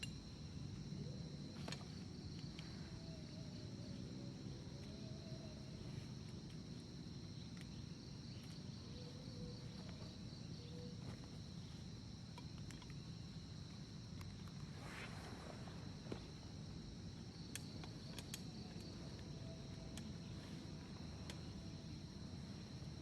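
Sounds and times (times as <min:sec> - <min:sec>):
crickets trilling: 0:00.0 - 0:23.0
faint clicks: 0:17.4 - 0:19.0.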